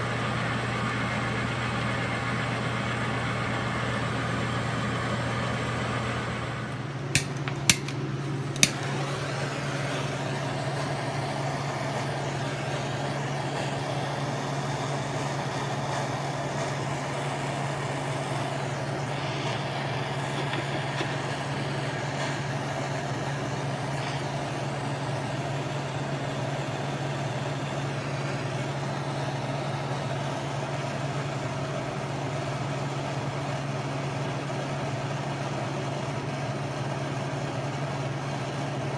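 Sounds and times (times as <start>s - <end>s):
metal lathe running: 0.0s - 36.3s
sharp clicks: 7.1s - 8.0s, 8.6s - 8.8s.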